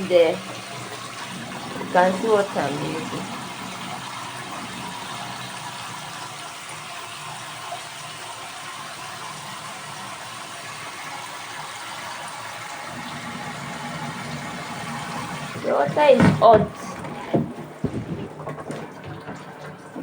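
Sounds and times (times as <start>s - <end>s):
water running into a tub: 0.0s - 20.0s.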